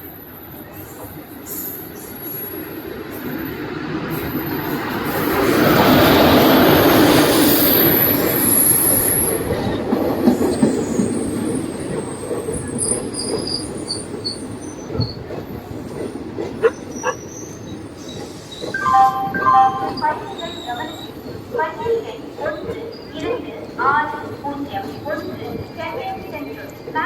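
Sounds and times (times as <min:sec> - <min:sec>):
train wheels rumbling on rails: 0:02.4 - 0:18.7.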